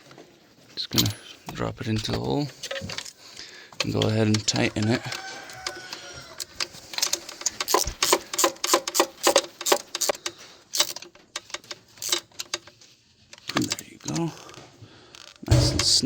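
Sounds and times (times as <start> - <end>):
ratchet wrench clicking: 5.1 - 12.6.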